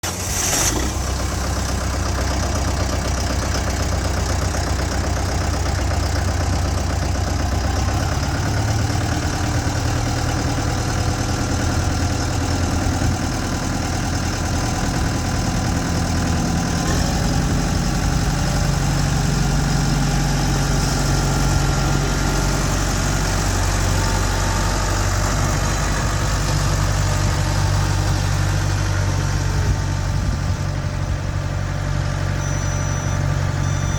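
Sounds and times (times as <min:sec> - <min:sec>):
tractor diesel engine idling: 0:00.0 - 0:33.9.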